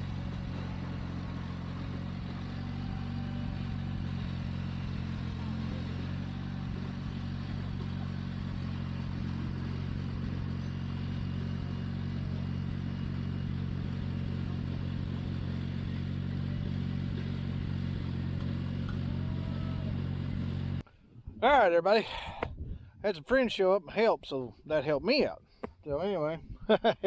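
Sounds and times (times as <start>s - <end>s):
tractor engine running: 0.0s - 20.8s.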